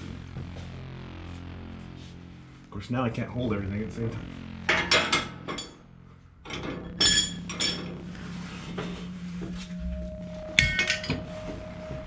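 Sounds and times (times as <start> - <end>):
metal clank: 6.5 - 8.0.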